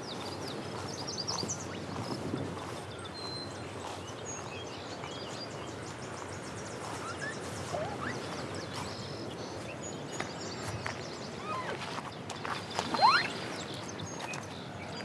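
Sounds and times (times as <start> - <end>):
rising whistled bird notes: 12.9 - 13.6.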